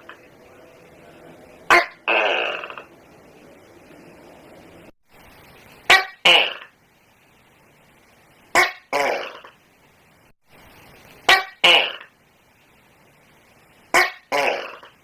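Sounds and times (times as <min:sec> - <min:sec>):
gecko calling: 0:01.1 - 0:03.0, 0:11.2 - 0:12.1, 0:13.9 - 0:15.0.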